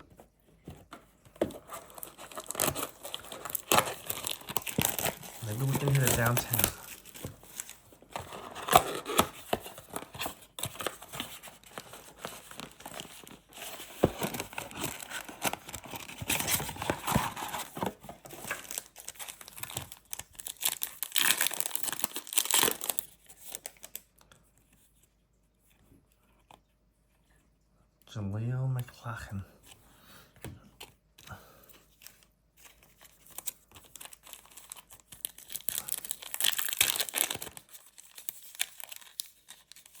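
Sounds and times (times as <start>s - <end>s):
plastic wrapping crinkling and tearing: 1.6s - 24.1s, 32.0s - 40.0s.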